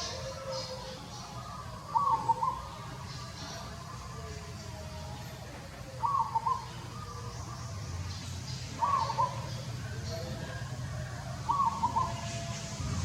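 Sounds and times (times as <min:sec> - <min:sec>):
bird call: 0:00.0 - 0:04.3, 0:08.7 - 0:10.7.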